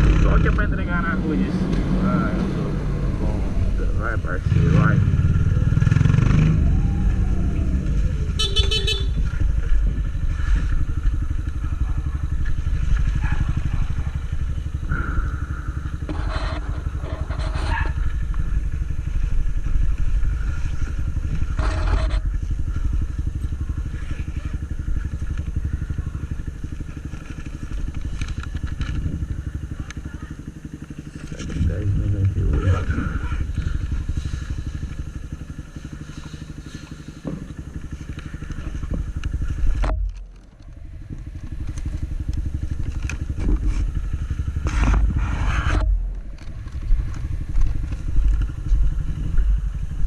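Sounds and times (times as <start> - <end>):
motorcycle engine running: 0.0 - 50.0
horn beep: 8.3 - 9.2.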